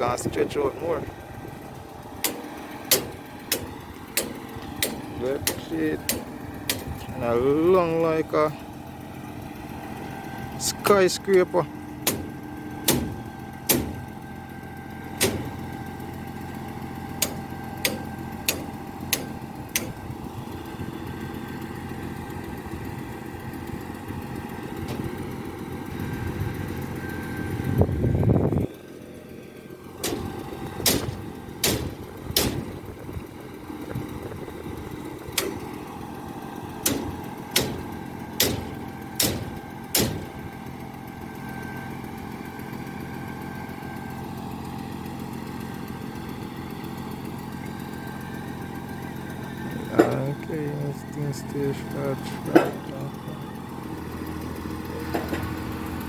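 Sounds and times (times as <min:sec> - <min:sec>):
machinery whine: 0:00.0 - 0:28.8, 0:47.2 - 0:56.0
truck engine running: 0:00.0 - 0:56.0
sharp knocks: 0:12.0 - 0:14.1, 0:15.2 - 0:15.6, 0:30.0 - 0:32.8, 0:36.8 - 0:40.4.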